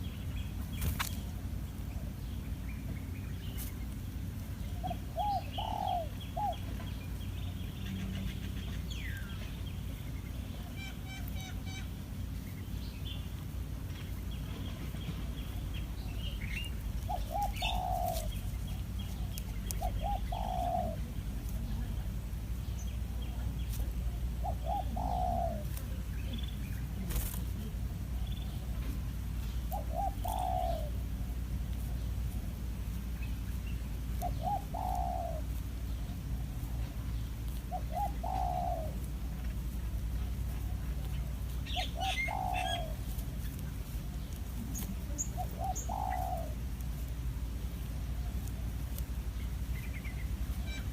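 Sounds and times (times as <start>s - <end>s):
small birds chirping: 0.0s - 50.9s
bird cooing: 4.6s - 12.0s, 15.2s - 32.4s, 33.8s - 36.6s, 37.2s - 47.0s, 49.4s - 50.9s.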